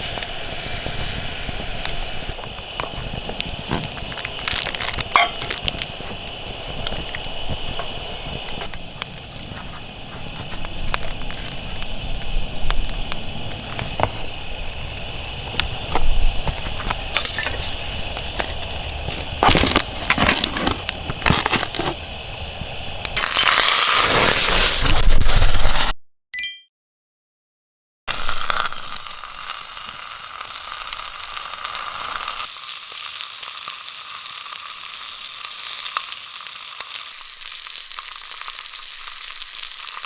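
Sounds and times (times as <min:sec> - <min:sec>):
campfire crackling and popping: 0:00.0 - 0:25.6, 0:28.1 - 0:40.0
crunching and rustling handling noise: 0:02.4 - 0:14.4, 0:15.4 - 0:22.1.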